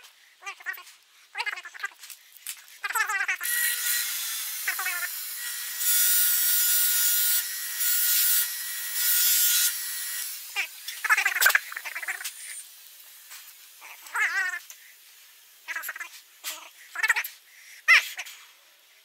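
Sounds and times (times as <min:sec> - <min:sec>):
power tool whining and grinding: 0:03.4 - 0:11.0.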